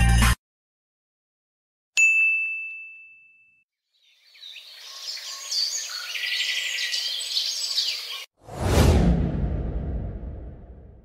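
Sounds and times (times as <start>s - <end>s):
high bell-like ding: 2.0s - 3.6s.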